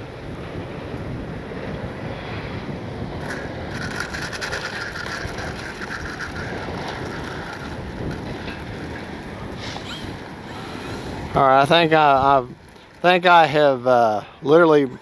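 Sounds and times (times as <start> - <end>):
wind buffeting microphone: 0.0 - 15.0
rapid rattling mechanical buzz: 3.2 - 12.4.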